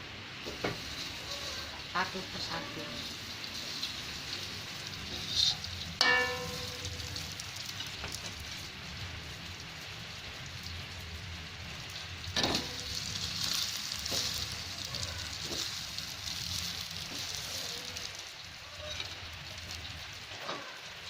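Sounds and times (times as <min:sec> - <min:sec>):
food sizzling in a pan: 0:00.0 - 0:21.0
metal clang on pan: 0:06.0 - 0:07.1.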